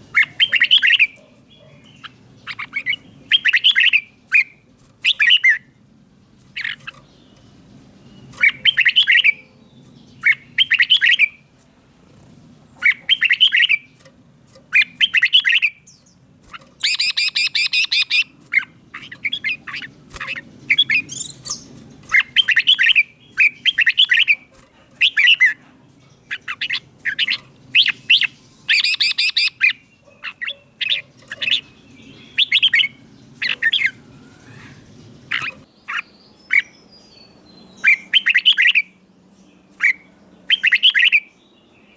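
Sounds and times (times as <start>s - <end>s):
bird harsh chattering: 0.0s - 5.7s, 6.5s - 7.4s, 8.1s - 9.5s, 10.2s - 11.5s, 12.1s - 14.0s, 14.6s - 36.7s
bird whistled song: 0.0s - 5.8s, 6.5s - 11.4s, 12.8s - 14.0s, 14.7s - 16.2s, 16.8s - 24.4s, 25.0s - 25.6s, 26.2s - 39.0s, 39.6s - 41.9s.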